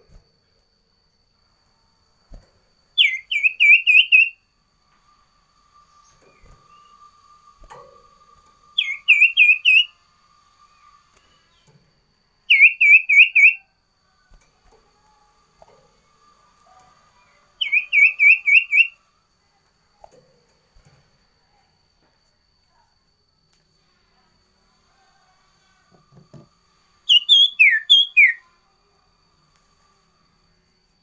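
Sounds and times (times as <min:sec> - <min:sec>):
faint steady whine: 0:00.0 - 0:31.0
bird singing whistled notes: 0:02.9 - 0:04.5, 0:05.4 - 0:11.7, 0:12.4 - 0:13.8, 0:16.3 - 0:19.1, 0:27.0 - 0:28.7.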